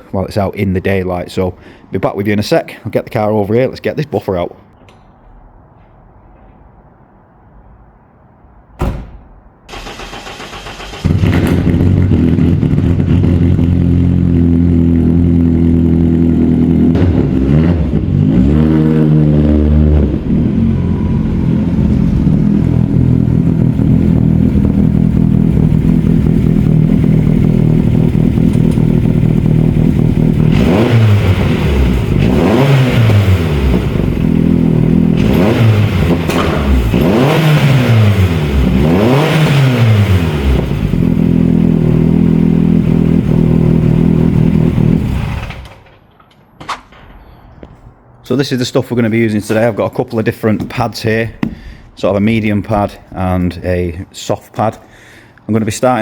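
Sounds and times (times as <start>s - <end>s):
thump: 8.8s - 9.5s, 11.2s - 11.8s, 17.0s - 17.3s, 51.4s - 51.7s
car engine starting and revving: 9.7s - 45.9s.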